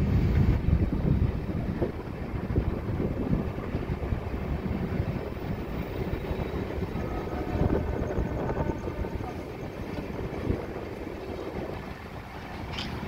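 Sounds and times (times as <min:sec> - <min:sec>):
train wheels rumbling and rattling: 0:00.0 - 0:13.0.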